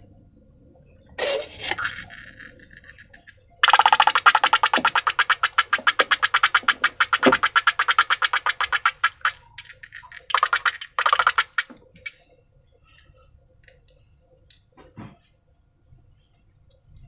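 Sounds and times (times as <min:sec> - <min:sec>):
slime squeezed by hand: 0:03.6 - 0:09.4.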